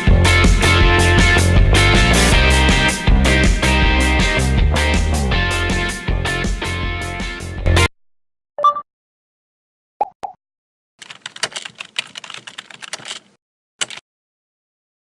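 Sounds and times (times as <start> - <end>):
background music: 0.0 - 7.9
rapid irregular clicking: 11.0 - 14.0.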